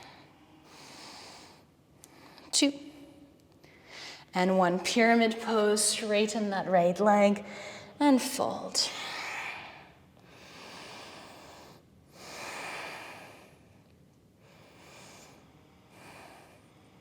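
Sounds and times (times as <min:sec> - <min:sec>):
person breathing: 0:03.6 - 0:04.3, 0:07.4 - 0:08.0, 0:09.0 - 0:13.8.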